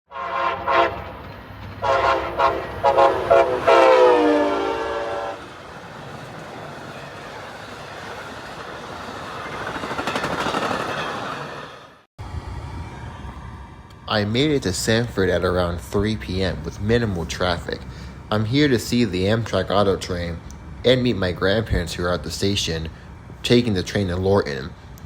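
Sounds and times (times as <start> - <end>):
locomotive air horn blasts: 0.1 - 1.2, 1.8 - 5.5
train rumble: 0.1 - 25.0.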